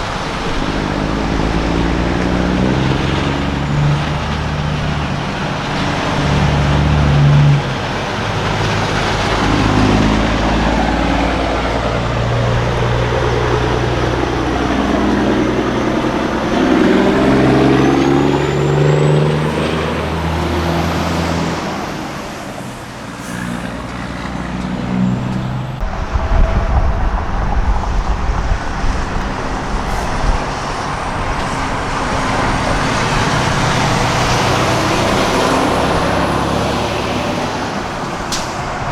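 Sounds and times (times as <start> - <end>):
deep rough exhaust rumble: 0.0 - 38.9
diesel trucks driving past: 0.0 - 38.9.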